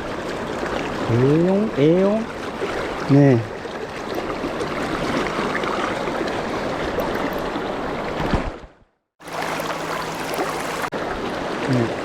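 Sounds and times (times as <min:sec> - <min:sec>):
river flowing over stones: 0:09.2 - 0:12.0.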